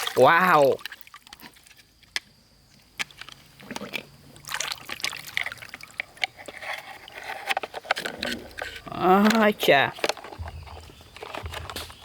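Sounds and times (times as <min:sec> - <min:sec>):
water trickling and sloshing: 0:00.0 - 0:12.0
plastic toys clicking and knocking: 0:06.0 - 0:12.0.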